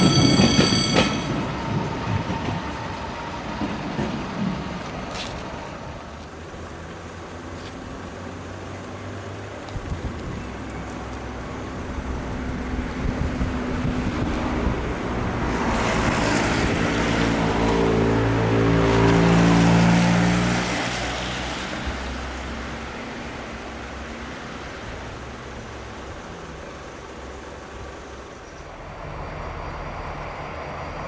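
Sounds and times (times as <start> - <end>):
locomotive engine hum: 20.9 - 31.0.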